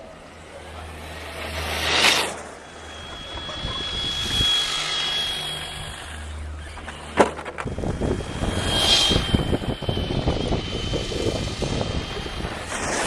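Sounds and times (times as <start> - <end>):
toy car motor whining: 0.6 - 13.0
rattly crackling over rough ground: 5.5 - 8.3.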